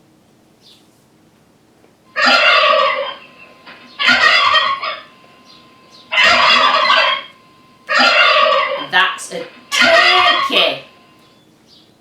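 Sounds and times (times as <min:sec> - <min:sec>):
turkey gobbling: 0:02.1 - 0:11.4.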